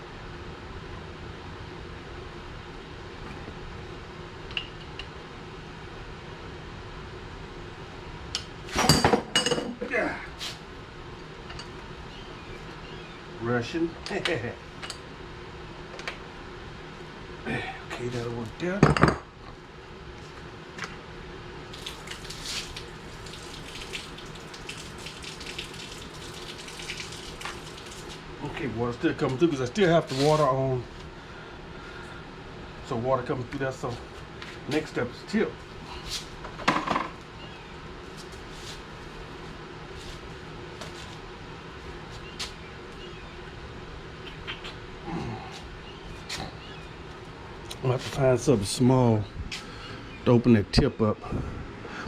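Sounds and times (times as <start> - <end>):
water flowing through hose: 21.7 - 28.2.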